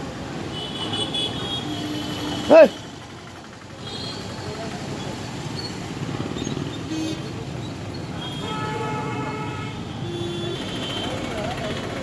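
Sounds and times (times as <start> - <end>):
truck engines running: 1.3 - 8.2, 9.9 - 12.0
voices: 2.2 - 5.7, 10.6 - 12.0.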